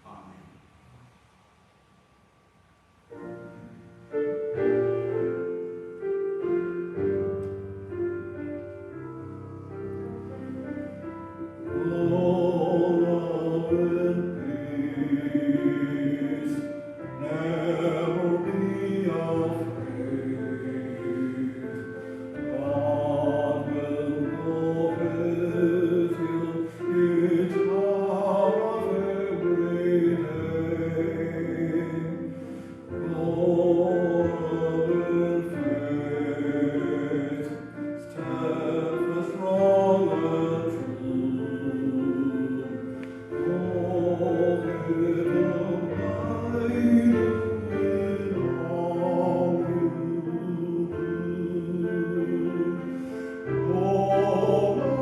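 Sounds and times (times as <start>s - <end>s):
choir singing: 11.7s - 32.4s, 33.0s - 55.0s.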